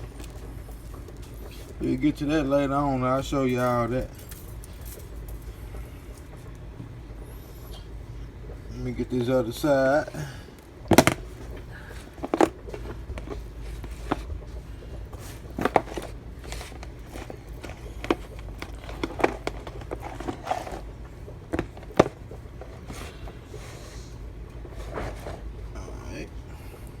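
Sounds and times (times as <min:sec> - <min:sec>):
low steady hum: 0:00.0 - 0:27.0
clicks and knocks handling ribs: 0:10.0 - 0:23.6.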